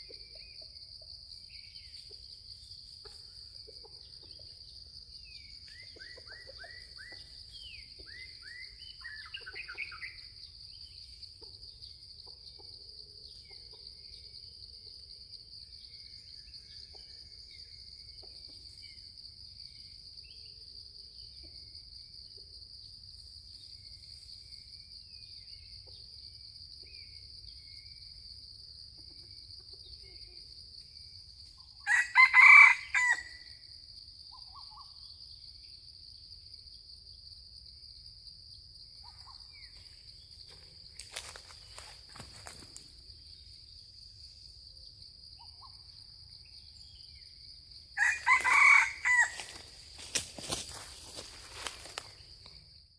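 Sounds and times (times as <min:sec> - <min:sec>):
high insect drone: 0:00.0 - 0:52.9
rooster crowing: 0:31.8 - 0:33.5, 0:48.0 - 0:49.8.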